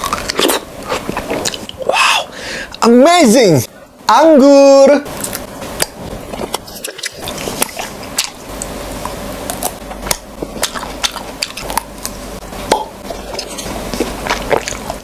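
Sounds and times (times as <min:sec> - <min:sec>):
chewing grapes: 0:00.0 - 0:01.9, 0:05.1 - 0:15.0.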